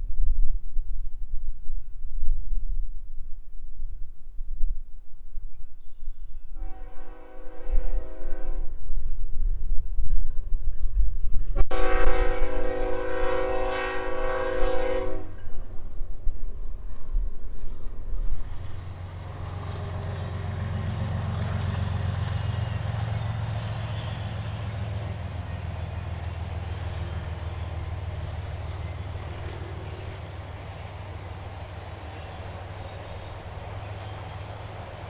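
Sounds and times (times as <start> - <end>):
locomotive air horn blasts: 6.6 - 8.8, 11.7 - 15.5, 18.6 - 35.0
train rail noise: 10.4 - 35.0
locomotive engine drone: 18.2 - 35.0.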